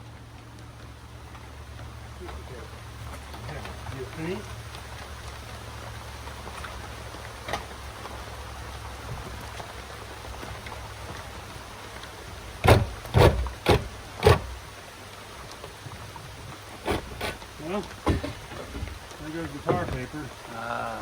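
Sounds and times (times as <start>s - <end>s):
rain hiss: 0.0s - 21.0s
loud sharp knocks: 12.6s - 14.7s, 16.8s - 17.4s, 18.0s - 19.0s, 19.6s - 20.2s.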